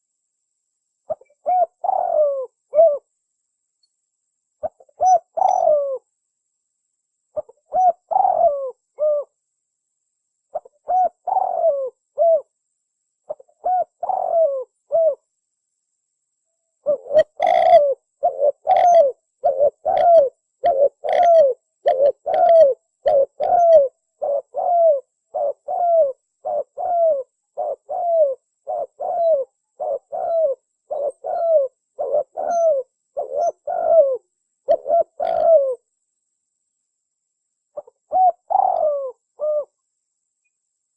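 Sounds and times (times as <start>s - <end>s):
dove cooing: 1.1s - 3.1s, 4.6s - 6.1s, 7.4s - 9.4s, 10.5s - 12.5s, 13.3s - 15.3s, 16.8s - 35.8s, 37.8s - 39.8s.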